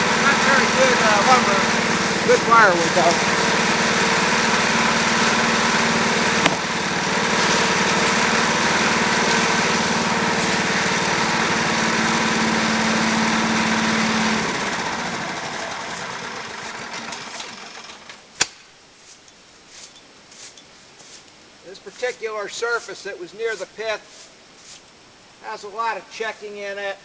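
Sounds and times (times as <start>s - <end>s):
sawmill engine running: 0.0s - 18.2s.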